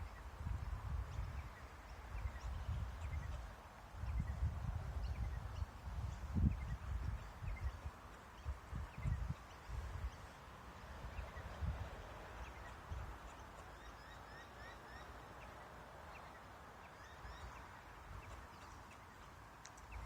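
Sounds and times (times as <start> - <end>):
small birds chirping faintly: 0.0 - 20.0.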